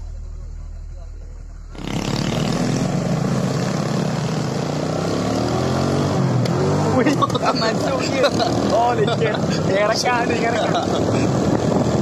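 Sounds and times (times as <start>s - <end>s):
motorcycle engine running: 0.0s - 4.9s.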